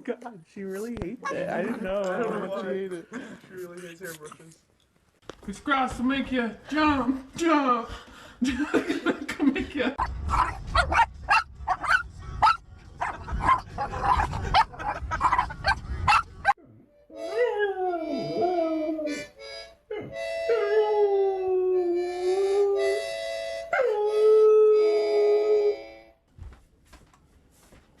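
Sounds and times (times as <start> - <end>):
dog howling: 17.2 - 19.1.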